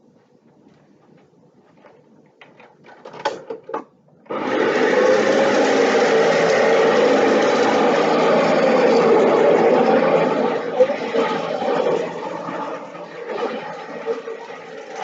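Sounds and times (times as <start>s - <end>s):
vacuum cleaner running: 4.3s - 15.0s.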